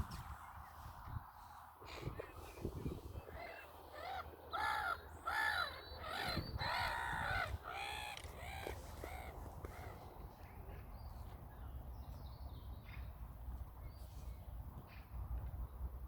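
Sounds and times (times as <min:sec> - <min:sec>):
bird calling: 0:03.2 - 0:10.1.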